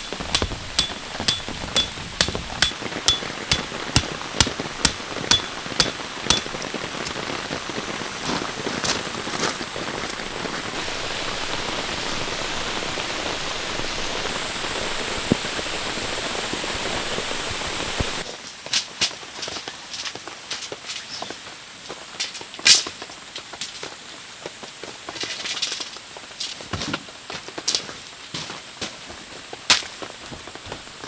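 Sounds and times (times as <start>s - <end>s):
ringing hammer strikes: 0.0s - 6.6s
rain falling: 0.0s - 18.3s.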